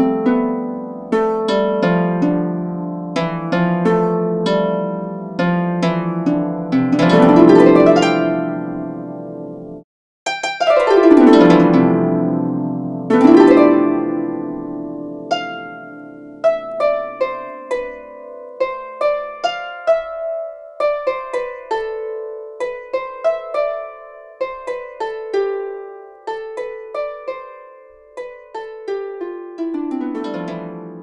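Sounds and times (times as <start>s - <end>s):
harp music: 0.0s - 31.0s.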